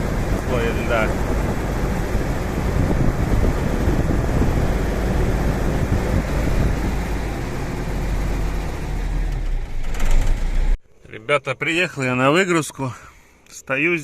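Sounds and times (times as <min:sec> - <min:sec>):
heavy truck engine running: 0:00.0 - 0:10.8.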